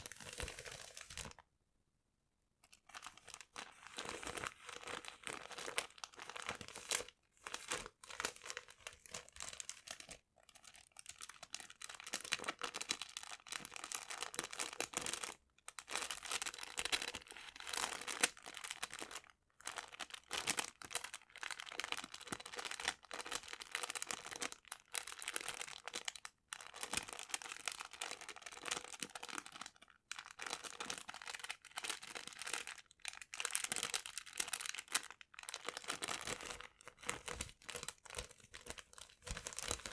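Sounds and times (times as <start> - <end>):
paper crumpling: 0.0 - 1.4, 35.7 - 39.9.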